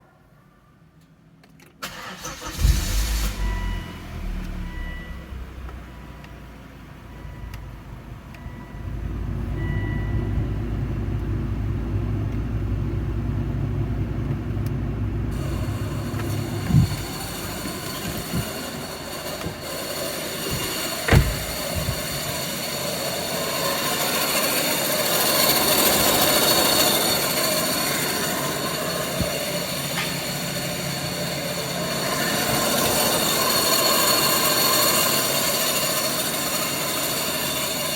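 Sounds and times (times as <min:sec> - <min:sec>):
car engine idling: 0:01.8 - 0:37.8
ventilation blower rushing air: 0:10.9 - 0:31.4
short knocks: 0:20.5 - 0:22.2.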